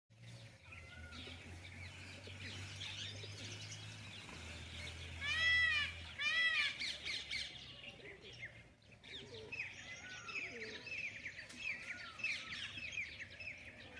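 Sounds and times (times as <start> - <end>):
small birds chirping: 0.1 - 13.9
peacock calling: 0.3 - 10.9.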